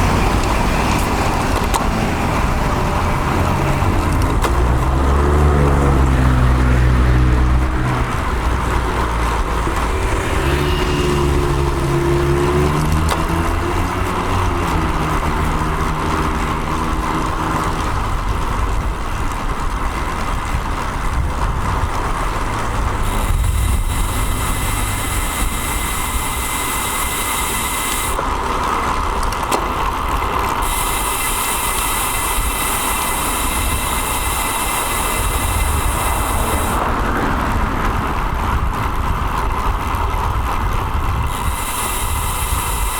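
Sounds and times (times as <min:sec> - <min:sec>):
road traffic noise: 0:00.0 - 0:42.9
vehicle engine running close by: 0:00.0 - 0:42.9
high hiss: 0:23.0 - 0:28.2, 0:30.6 - 0:36.8, 0:41.3 - 0:42.9.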